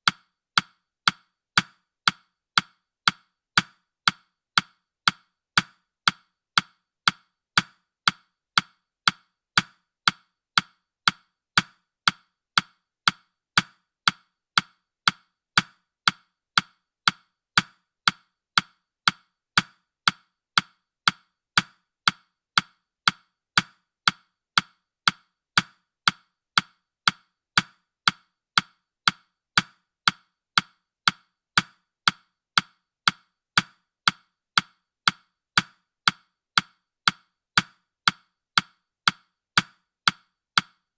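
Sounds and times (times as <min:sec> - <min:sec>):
clock ticking: 0:00.0 - 0:40.9.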